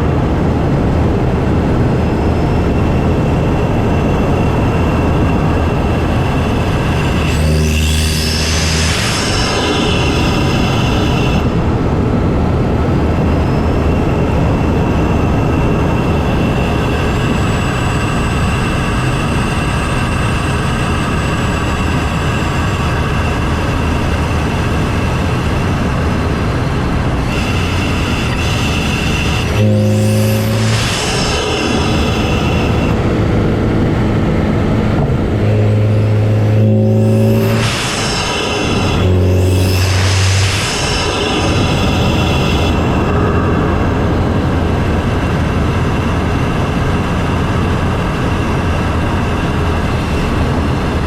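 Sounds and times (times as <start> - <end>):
car engine and intake noise: 0.0 - 51.0
faint high whistle: 27.3 - 33.0, 35.8 - 43.8.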